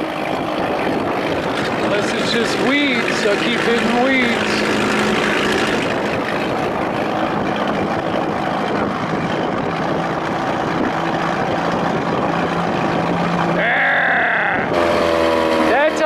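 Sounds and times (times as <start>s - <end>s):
outboard motor at full throttle: 0.0s - 16.0s
rushing wind: 0.0s - 16.0s
water rushing past boat: 0.0s - 16.0s.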